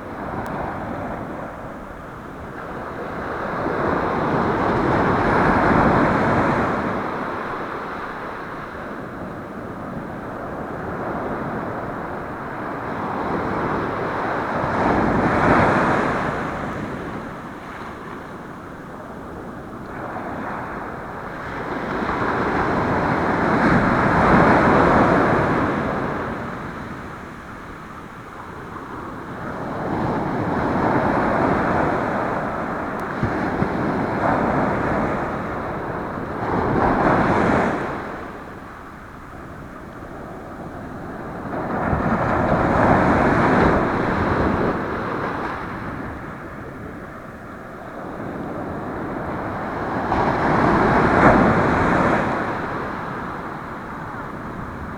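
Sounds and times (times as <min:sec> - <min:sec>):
ocean surf breaking on shore: 0:00.0 - 0:54.9
wind buffeting microphone: 0:00.0 - 0:54.9.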